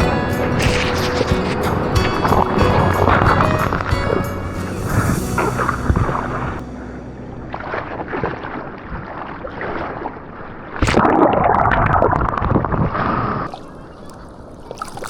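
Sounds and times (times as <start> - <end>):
seawater splashing and rushing: 0.0 - 6.6, 7.4 - 15.0
wind on microphone: 0.0 - 6.6.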